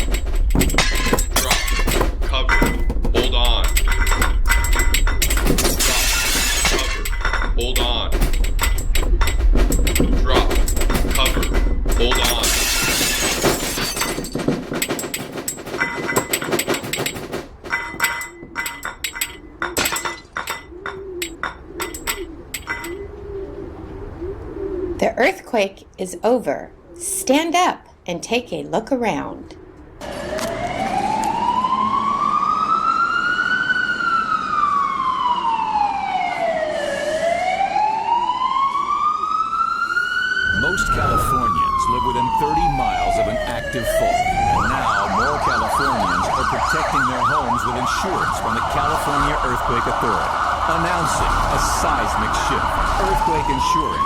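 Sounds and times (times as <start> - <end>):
objects rattling and knocking: 0.0 - 23.1
siren wailing: 0.0 - 25.1, 29.9 - 54.0.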